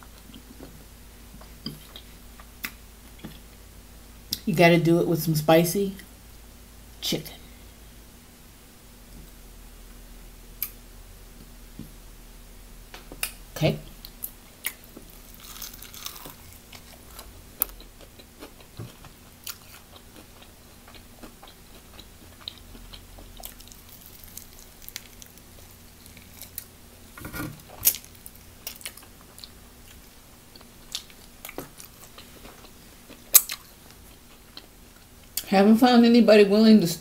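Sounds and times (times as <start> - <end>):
crunchy biting and chewing: 14.0 - 26.8, 27.4 - 30.0, 30.6 - 34.7.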